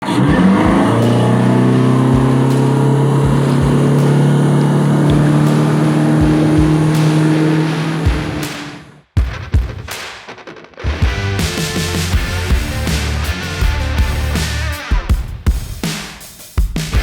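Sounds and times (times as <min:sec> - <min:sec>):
outboard motor running: 0:00.0 - 0:09.0
low thuds: 0:00.2 - 0:09.0.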